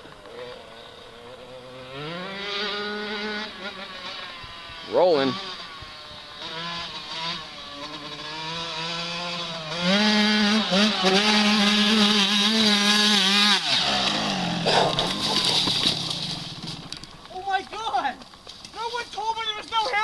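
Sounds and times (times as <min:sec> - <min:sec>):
dirt bike engine revving: 0:00.0 - 0:17.6
short rough clatter: 0:14.0 - 0:17.4.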